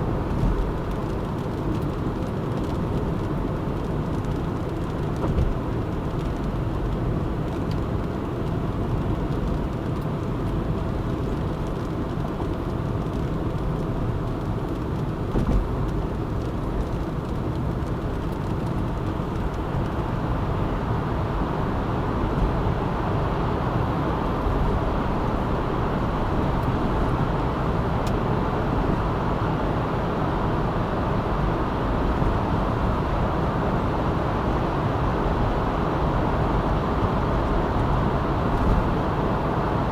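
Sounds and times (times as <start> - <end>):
car engine and tyre rumble: 0.0 - 39.9
short thump: 15.3 - 15.7.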